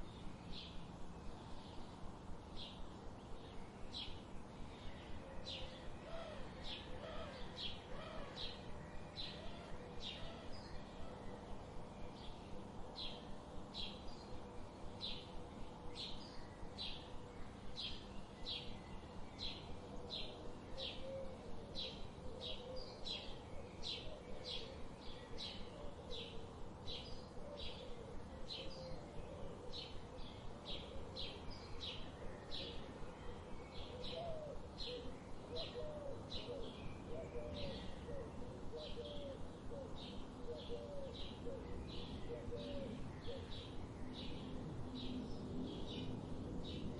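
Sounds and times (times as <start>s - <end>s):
low background hiss: 0.0s - 46.9s
soft gliding bird calls: 19.6s - 44.2s.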